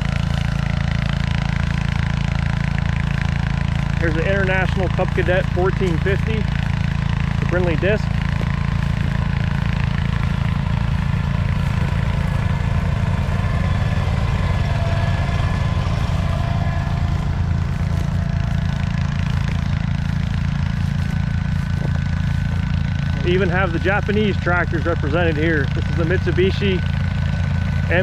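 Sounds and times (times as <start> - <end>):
garden tractor engine running: 0.0 - 28.0.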